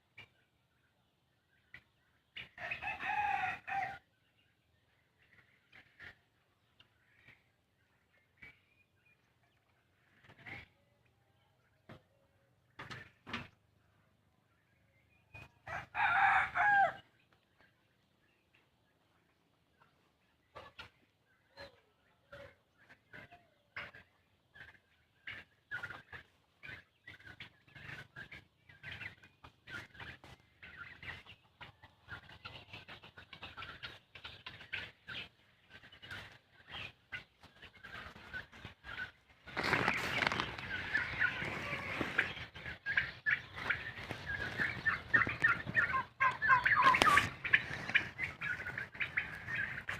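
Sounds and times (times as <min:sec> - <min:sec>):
flock of poultry calling: 0:00.0 - 0:49.9.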